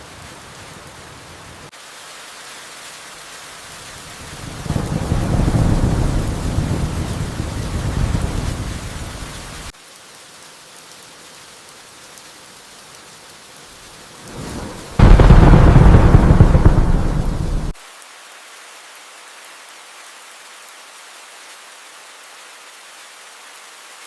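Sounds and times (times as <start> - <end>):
steady rain: 0.0 - 24.0
thunder rumbling: 4.2 - 9.7, 14.3 - 17.8
loud thunderclap: 4.4 - 9.7, 14.3 - 17.8.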